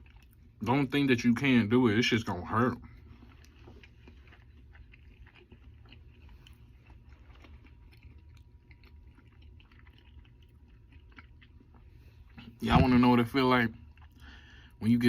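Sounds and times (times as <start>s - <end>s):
man chewing with wet clicks: 0.0s - 15.0s.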